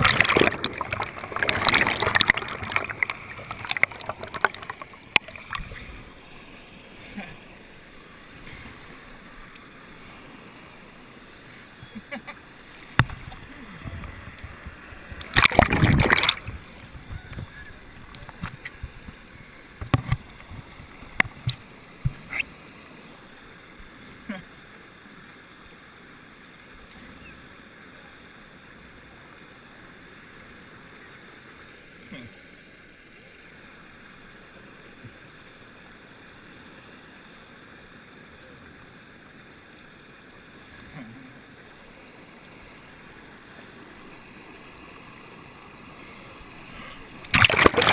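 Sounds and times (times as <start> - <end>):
loud splash: 0.0 - 5.6, 15.3 - 16.5, 47.3 - 47.9
water rushing underwater: 0.0 - 11.8, 12.6 - 23.9, 46.0 - 47.9.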